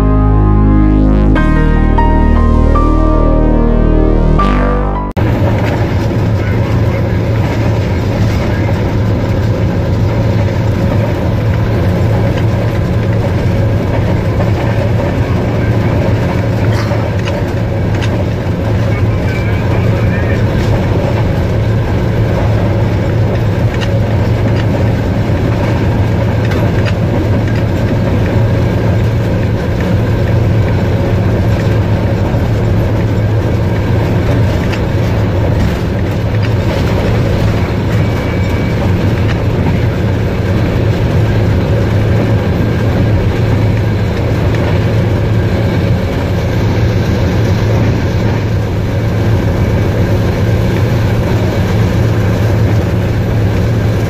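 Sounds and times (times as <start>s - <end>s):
train rumbling on rails: 5.0s - 54.0s
train wheel clicks: 5.5s - 19.8s, 20.4s - 46.5s.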